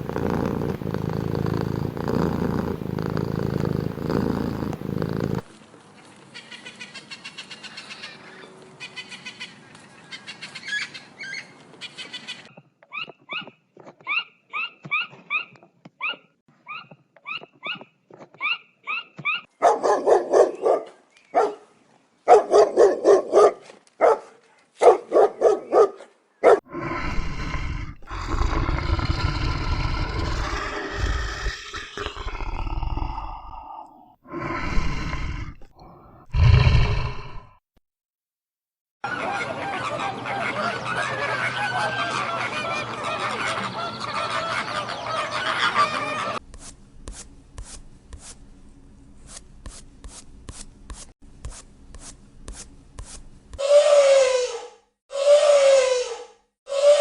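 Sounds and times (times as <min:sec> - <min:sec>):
big cat roaring: 0:00.0 - 0:05.4, 0:26.7 - 0:37.6
cat purring: 0:00.0 - 0:05.5
dog barking: 0:19.6 - 0:21.7, 0:22.3 - 0:26.6.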